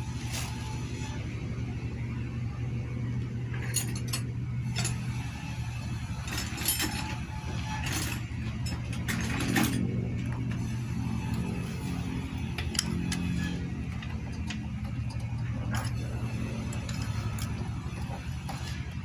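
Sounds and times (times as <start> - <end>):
steady low hum: 0.0 - 19.0
metallic clicks and clinks of tools: 3.6 - 5.0, 12.6 - 18.9.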